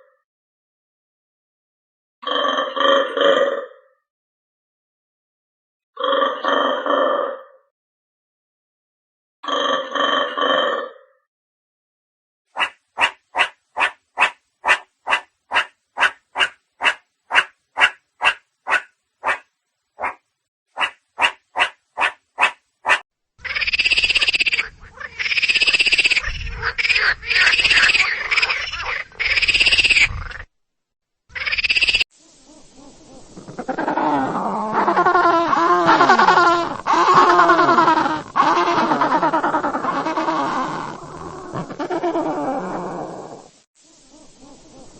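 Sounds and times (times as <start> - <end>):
drawn-out rising and falling calls: 12.6 - 19.4, 20.8 - 30.5, 31.3 - 44.9
short evenly spaced animal calls: 12.6 - 20.2, 20.8 - 30.5, 31.3 - 44.9.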